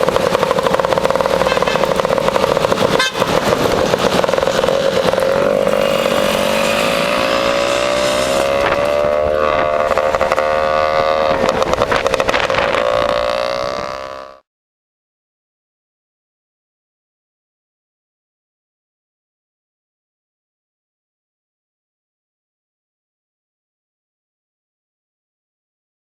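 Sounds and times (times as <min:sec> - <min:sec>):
two-stroke scooter engine running: 0:00.0 - 0:14.3.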